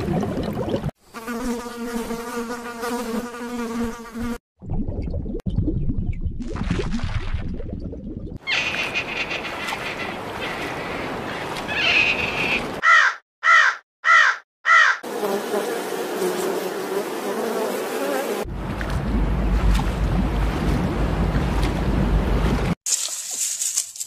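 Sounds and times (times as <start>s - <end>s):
insect buzz: 1.0s - 4.4s, 14.9s - 18.5s
raven calling: 8.4s - 15.0s.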